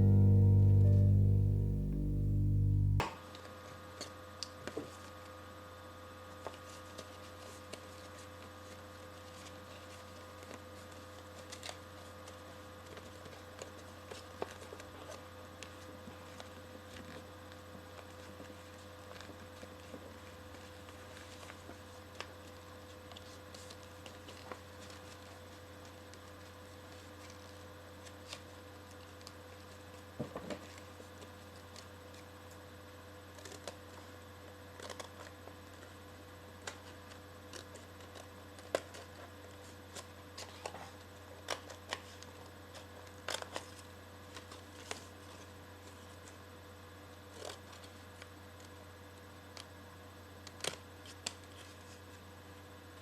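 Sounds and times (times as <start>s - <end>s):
low electrical hum: 0.0s - 3.2s.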